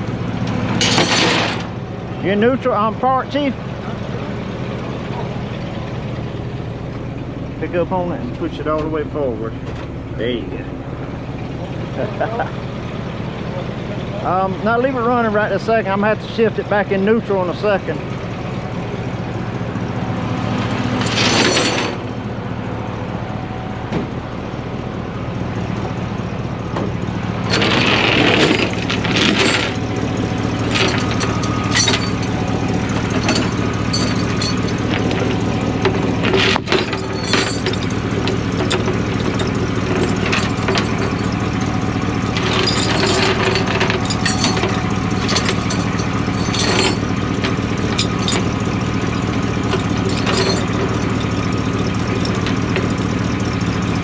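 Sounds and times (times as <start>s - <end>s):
heavy truck engine idling: 0.0s - 54.0s
metal clanks: 0.7s - 1.7s, 21.0s - 22.1s, 27.5s - 53.0s.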